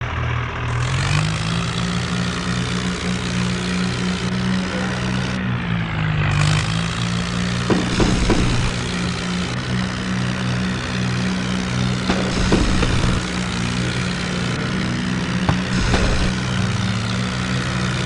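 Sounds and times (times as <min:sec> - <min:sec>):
tractor diesel engine running: 0:00.0 - 0:18.0
sharp knocks: 0:07.7 - 0:08.9.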